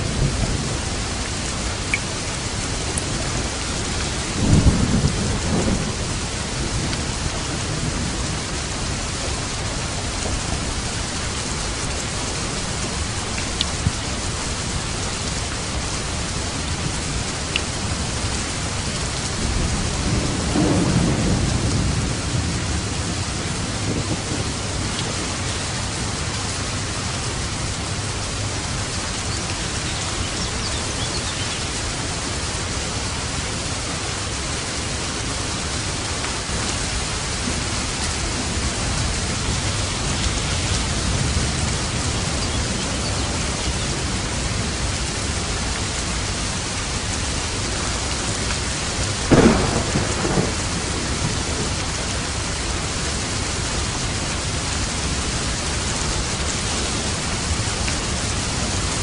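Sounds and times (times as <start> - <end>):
heavy rain: 0.0 - 59.0
low rumbling thunder: 2.8 - 13.1, 16.8 - 27.8, 36.5 - 46.7, 49.0 - 53.5
sharp thunder crack: 49.3 - 51.4.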